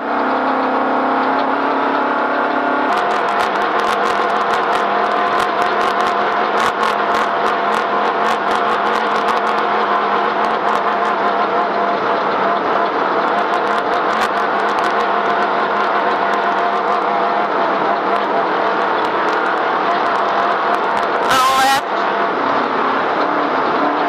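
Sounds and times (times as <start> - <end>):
race vehicle engine running hard: 0.0 - 24.0
clicks and knocks from rocky terrain: 2.9 - 11.2, 13.2 - 17.0.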